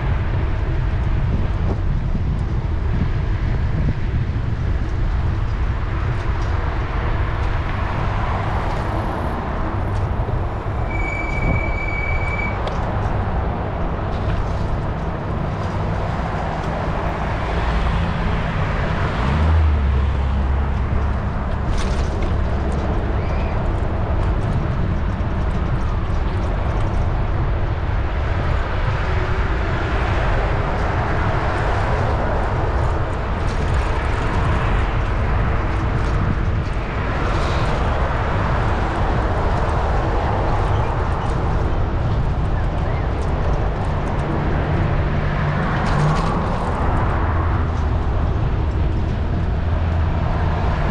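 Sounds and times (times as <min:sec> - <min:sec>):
bicycle rolling noise: 0:00.0 - 0:50.9
deeper rumble: 0:00.0 - 0:50.9
wind rumble: 0:00.0 - 0:50.9
short high beep: 0:10.9 - 0:12.6.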